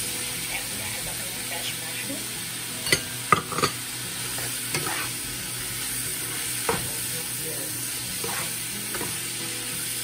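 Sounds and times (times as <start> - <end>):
meat and vegetables sizzling: 0.0 - 10.0
spatula knocking and scraping pan: 3.0 - 5.3, 8.2 - 9.2.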